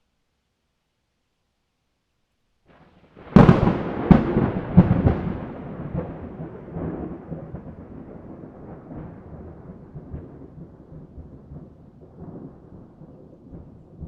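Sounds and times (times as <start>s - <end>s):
thunder cracks and rumble: 3.2s - 14.0s.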